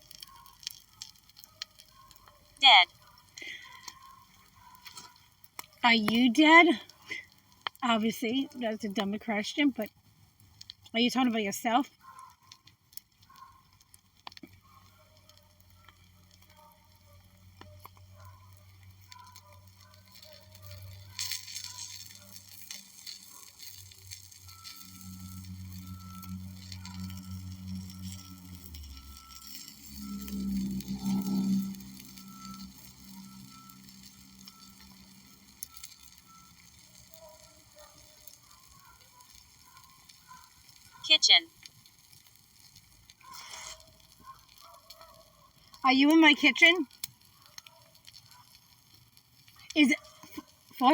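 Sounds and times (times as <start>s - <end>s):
small ticks: 0.0s - 50.9s
wood fire crackling: 0.0s - 50.9s
low hum: 20.7s - 36.5s.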